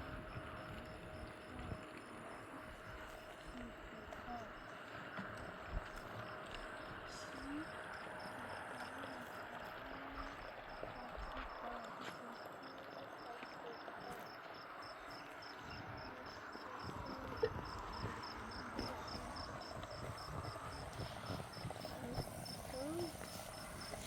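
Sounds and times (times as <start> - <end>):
cricket chirping: 0.0 - 24.0
low background hum: 0.0 - 24.0.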